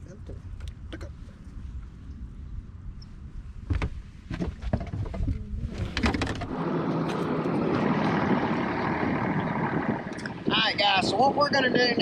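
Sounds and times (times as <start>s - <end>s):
steady rushing noise: 6.0s - 12.0s.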